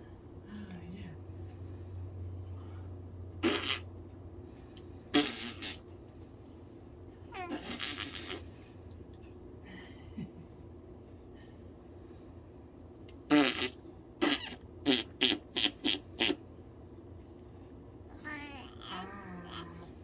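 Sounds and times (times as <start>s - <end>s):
animal fart-like noises: 3.4s - 3.9s, 5.1s - 5.9s, 7.5s - 8.5s, 13.3s - 16.4s.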